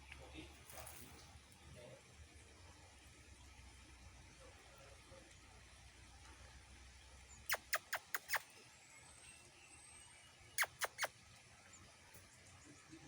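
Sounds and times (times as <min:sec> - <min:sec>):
monkeys squeaking: 0:07.5 - 0:08.5, 0:10.6 - 0:11.1.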